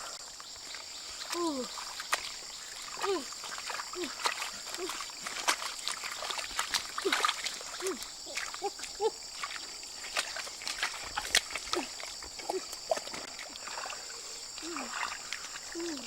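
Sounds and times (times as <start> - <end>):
water splashing and trickling: 0.0 - 16.0
small plops and clicks: 1.2 - 13.9.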